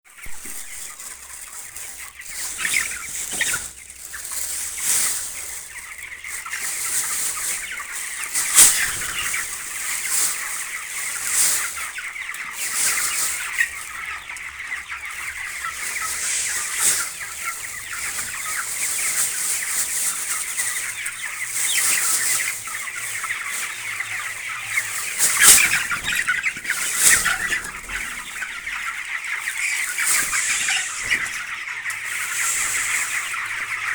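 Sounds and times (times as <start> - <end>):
chickens clucking and squawking: 0.2 - 33.9.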